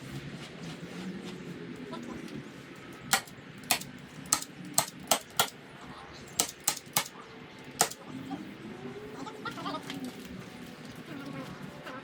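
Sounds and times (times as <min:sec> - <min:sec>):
staple gun snaps: 0:03.1 - 0:05.5, 0:06.4 - 0:07.1, 0:07.8 - 0:08.0.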